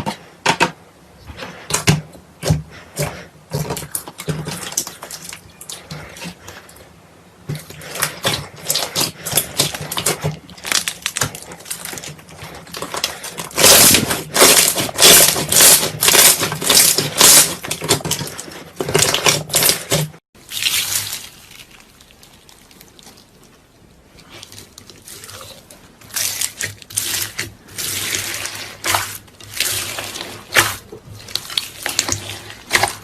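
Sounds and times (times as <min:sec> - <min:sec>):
slime squelching and popping: 0:07.4 - 0:33.0.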